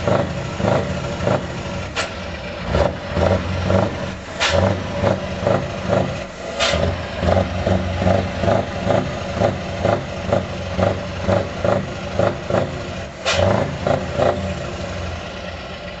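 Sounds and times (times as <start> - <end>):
engine idling unevenly: 0.0 - 16.0
sharp crack: 4.4 - 4.8, 13.2 - 13.7.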